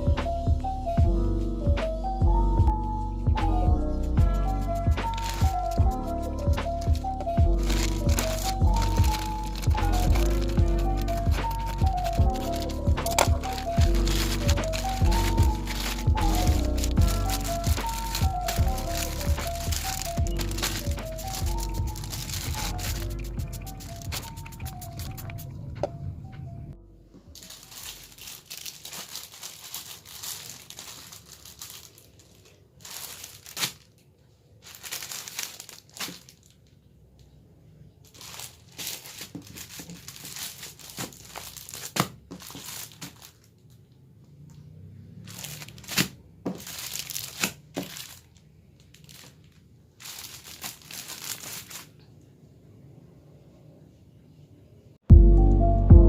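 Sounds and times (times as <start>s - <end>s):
packaging crinkling: 4.5s - 25.5s, 27.2s - 36.8s, 38.0s - 44.0s, 45.2s - 52.1s.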